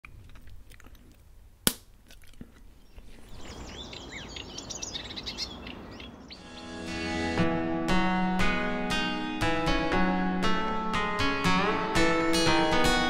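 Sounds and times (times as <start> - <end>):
birds chirping rapidly: 2.7 - 6.8.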